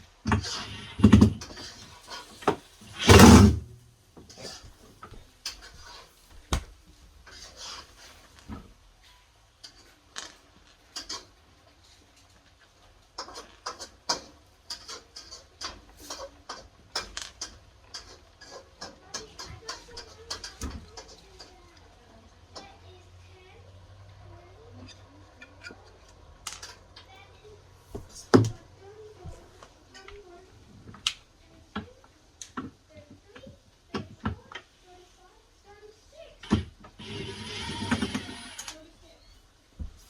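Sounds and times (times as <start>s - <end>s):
loud clattering knocks: 3.0s - 3.6s.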